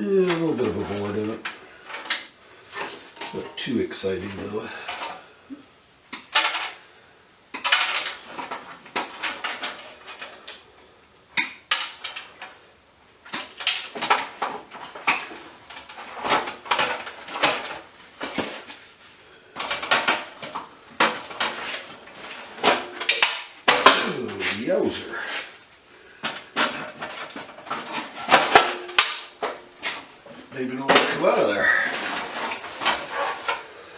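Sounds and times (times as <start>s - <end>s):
metal parts clinking and clattering: 6.1s - 6.8s, 7.5s - 10.7s, 11.4s - 12.6s, 13.2s - 19.0s, 19.6s - 33.8s.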